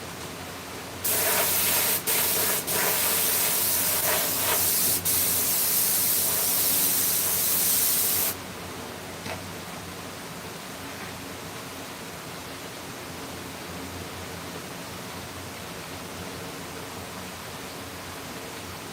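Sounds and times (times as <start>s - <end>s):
pressurised spray hissing: 1.0s - 8.4s.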